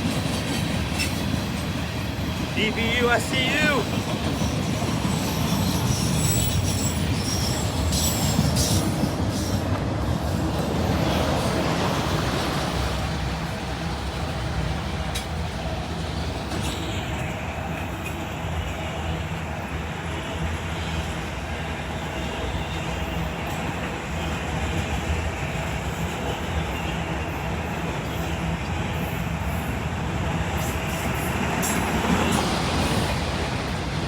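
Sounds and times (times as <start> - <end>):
freight train wheels rumbling: 0.0 - 34.0
wheels clicking over rail joints: 3.8 - 18.3
high wheel squeal: 5.0 - 9.0.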